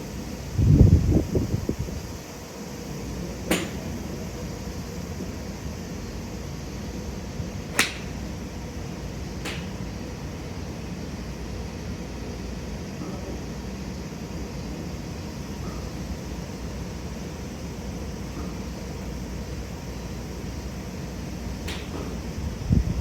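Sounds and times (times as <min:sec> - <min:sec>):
golf clubs striking balls: 0:03.5 - 0:04.0, 0:07.7 - 0:08.4, 0:09.4 - 0:09.9, 0:21.6 - 0:22.2.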